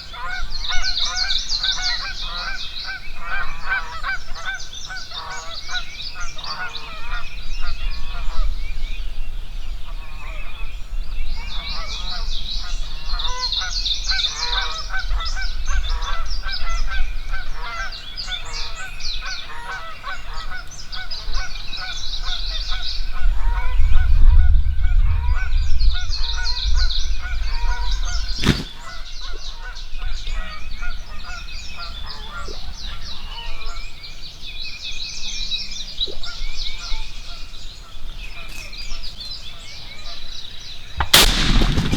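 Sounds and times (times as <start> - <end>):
wild turkeys and birds calling: 0.0 - 41.9
sharp crack: 28.3 - 29.1, 41.0 - 41.9.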